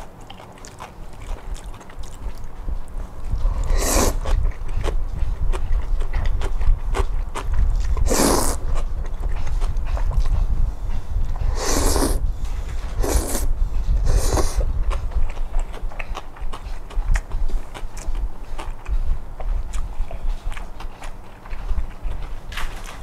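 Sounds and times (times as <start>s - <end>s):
wet chewing: 0.0s - 23.0s
low rumble: 1.3s - 20.7s
short hissing bursts: 3.7s - 4.2s, 8.1s - 8.6s, 11.5s - 12.2s.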